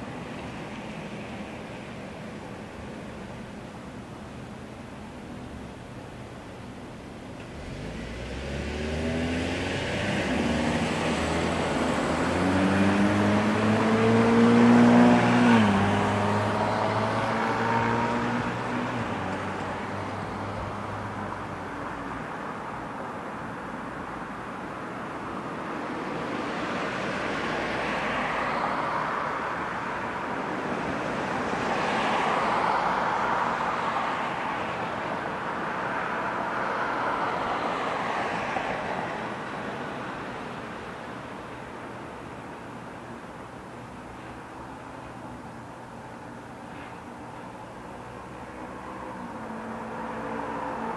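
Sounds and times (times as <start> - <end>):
vehicles passing on road: 0.0 - 50.9
vehicle engine accelerating: 7.5 - 19.0.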